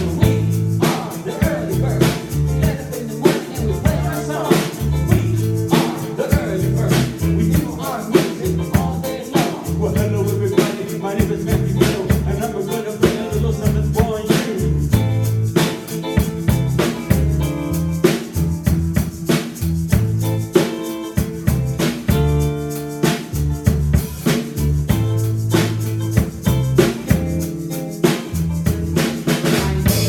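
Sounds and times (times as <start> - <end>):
person singing: 0.0 - 15.0
bass guitar: 0.0 - 30.0
drum kit beat: 0.0 - 30.0
electric guitar: 0.0 - 30.0.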